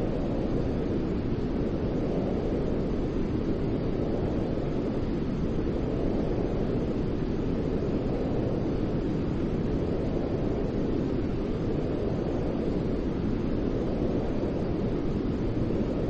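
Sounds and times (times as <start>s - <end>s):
deep white noise: 0.0s - 16.0s.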